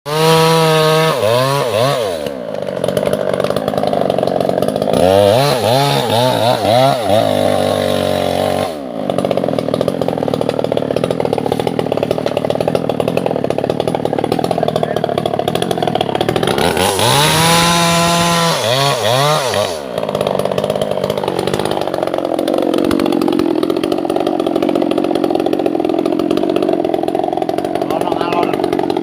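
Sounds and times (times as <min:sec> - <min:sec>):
chainsaw engine revving: 0:00.1 - 0:29.0.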